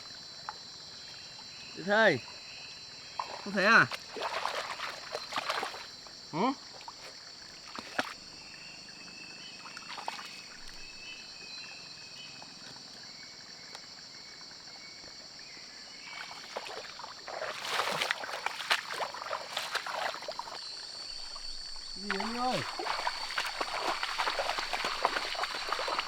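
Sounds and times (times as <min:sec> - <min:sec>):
insects chorus: 0:00.0 - 0:26.0
splashing in shallow water: 0:03.0 - 0:08.6, 0:09.4 - 0:11.5, 0:16.0 - 0:26.0
rustling through wet vegetation: 0:03.2 - 0:06.1, 0:06.7 - 0:08.3, 0:09.5 - 0:11.2, 0:16.0 - 0:26.0.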